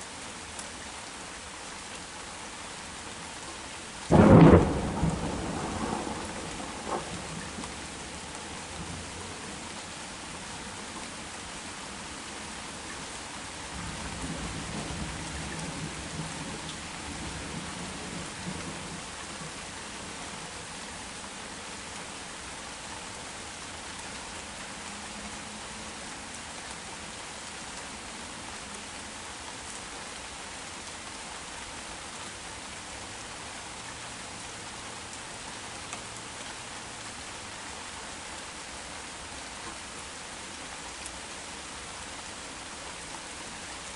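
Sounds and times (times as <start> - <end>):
heavy rain: 0.0 - 43.9
thunder rumbling: 4.1 - 7.8.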